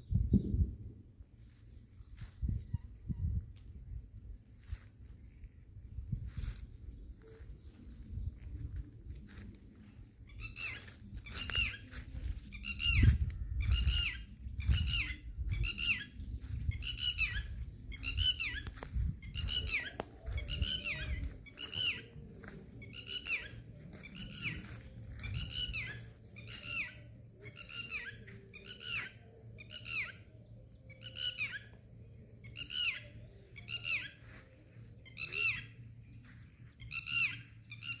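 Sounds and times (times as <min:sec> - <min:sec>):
low rumble: 0:05.0 - 0:26.4.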